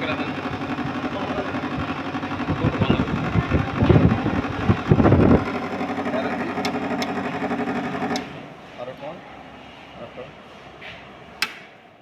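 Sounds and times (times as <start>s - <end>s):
loud irregular low rumbling: 0.0s - 8.3s
air conditioner humming: 0.0s - 12.0s.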